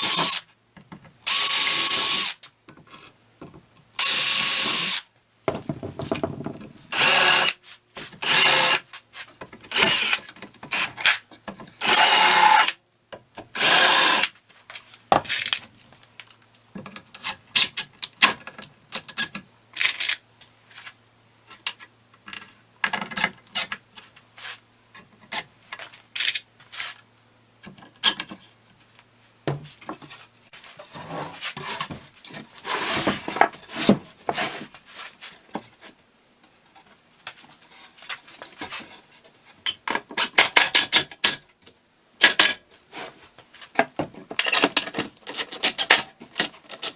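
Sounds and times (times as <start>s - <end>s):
power drill bursts: 1.3s - 2.4s, 4.0s - 5.0s, 7.0s - 7.6s, 8.2s - 8.8s, 11.8s - 12.7s, 13.6s - 14.3s
wood and tools knocking: 5.5s - 6.7s.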